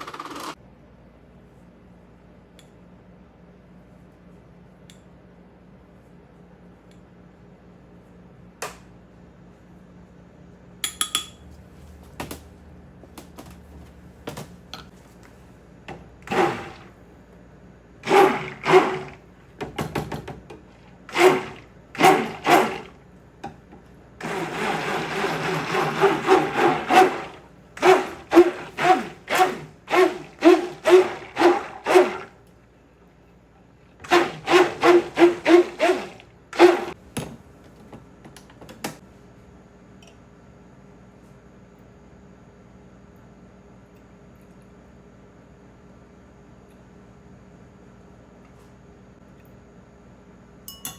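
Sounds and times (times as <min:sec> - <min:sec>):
glassware clicking: 0:50.7 - 0:50.9.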